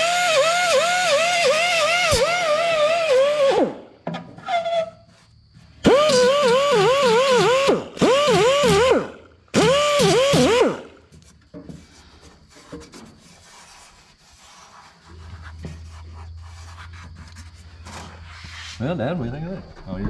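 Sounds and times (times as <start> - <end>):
grinder whining: 0.0 - 4.8, 5.8 - 11.1
light scraping and rubbing: 4.4 - 5.8, 11.1 - 19.2.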